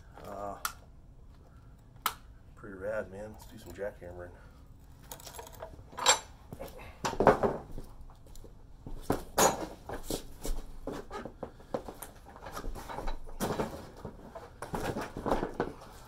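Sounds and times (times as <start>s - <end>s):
gear knocking and clinking: 4.8s - 6.4s.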